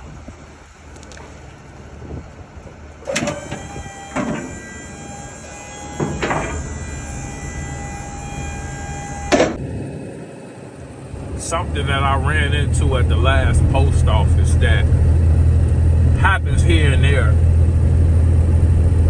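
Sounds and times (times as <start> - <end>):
truck road rumble: 0.0 - 19.0
steady whine: 2.8 - 19.0
sharp clunks: 3.1 - 9.6.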